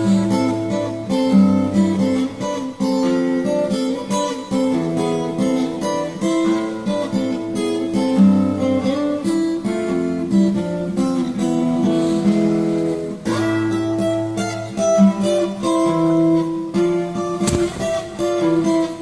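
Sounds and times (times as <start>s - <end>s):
acoustic guitar strumming and picking: 0.0s - 19.0s.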